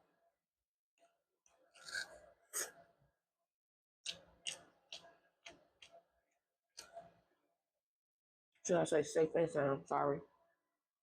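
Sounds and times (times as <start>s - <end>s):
chewing and wet mouth sounds: 4.0s - 6.0s.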